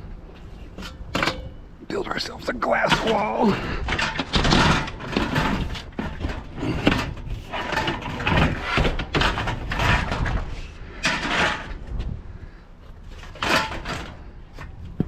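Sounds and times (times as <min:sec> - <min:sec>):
scrap knocking and rattling: 0:02.9 - 0:12.1.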